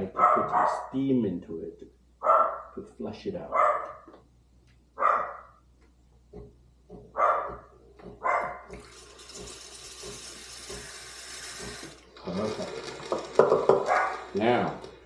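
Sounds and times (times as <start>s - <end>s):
dog barking: 0.1s - 0.9s, 2.2s - 2.8s, 3.5s - 4.1s, 5.0s - 5.6s, 7.1s - 8.7s, 13.8s - 14.2s.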